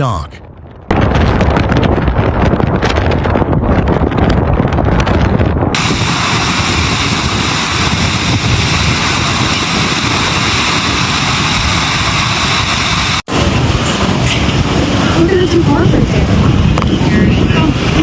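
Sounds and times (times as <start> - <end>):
storm wind buffeting microphone: 0.0 - 18.0.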